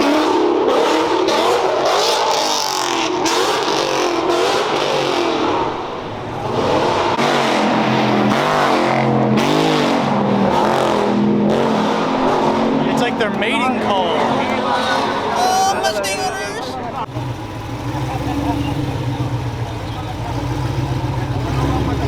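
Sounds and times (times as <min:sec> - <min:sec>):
car engines revving hard: 0:00.0 - 0:22.0
deep engine throttle blips: 0:17.0 - 0:22.0.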